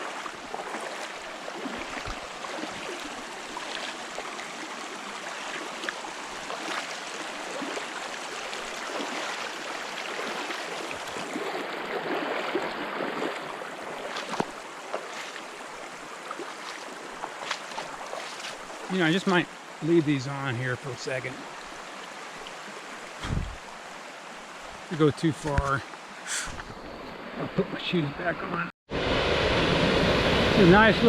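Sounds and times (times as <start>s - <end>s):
splashes of person wading: 0.0s - 19.0s
creek water rushing over rocks: 0.0s - 26.6s.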